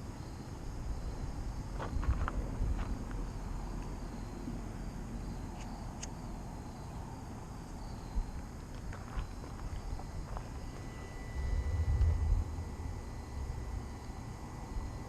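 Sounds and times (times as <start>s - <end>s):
insects trilling: 0.0s - 15.0s
wind rumbling on microphone: 0.9s - 3.4s, 8.1s - 15.0s.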